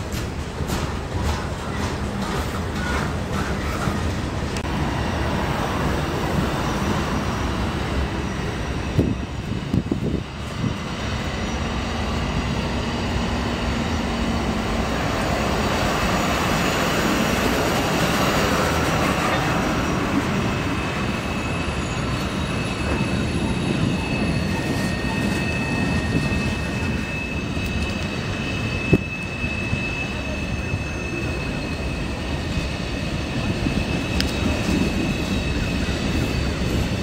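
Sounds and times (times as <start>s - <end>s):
high-pitched wheel squeal: 11.2s - 37.0s.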